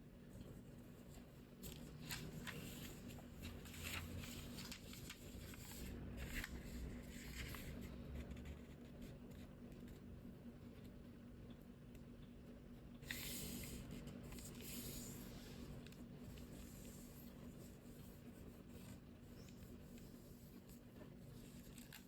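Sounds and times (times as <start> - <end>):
low steady hum: 0.0 - 22.0
paper rustling and crinkling: 1.0 - 8.0, 13.1 - 22.0.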